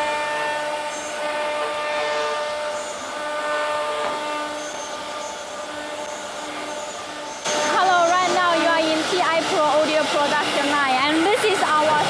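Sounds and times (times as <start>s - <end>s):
cnc router whine and hiss: 0.0s - 12.0s.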